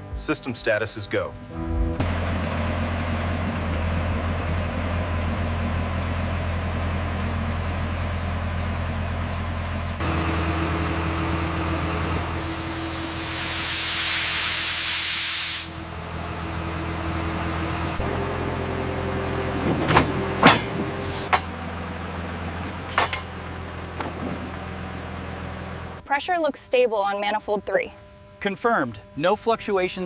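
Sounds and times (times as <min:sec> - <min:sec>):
low machine hum: 0:00.0 - 0:14.9, 0:15.6 - 0:30.0
loud hiss: 0:12.2 - 0:16.2.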